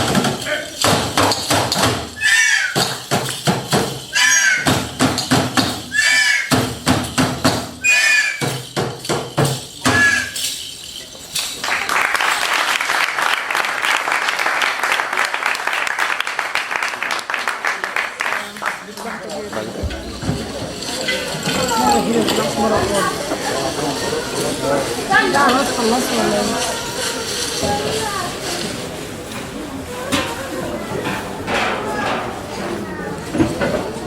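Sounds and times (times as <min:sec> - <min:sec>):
percussion strikes with falling tone: 0:00.0 - 0:11.6
audience applause: 0:11.5 - 0:26.9.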